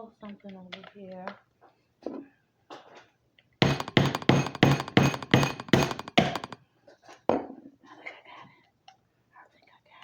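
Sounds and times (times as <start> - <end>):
lobster shell being struck: 3.6 - 6.6.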